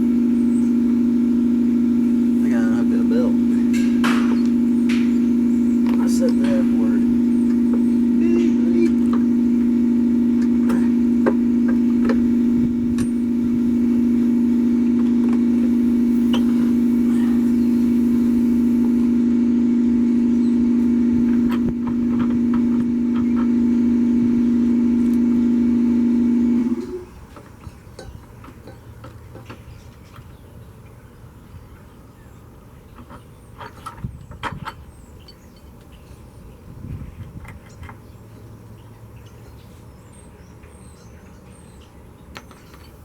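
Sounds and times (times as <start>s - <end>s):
mower engine running: 0.0s - 27.6s.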